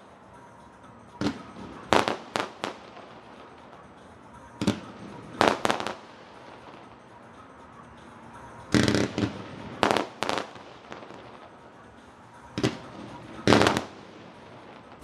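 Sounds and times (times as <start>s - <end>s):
fireworks bursting: 0.0s - 7.4s, 8.0s - 15.0s.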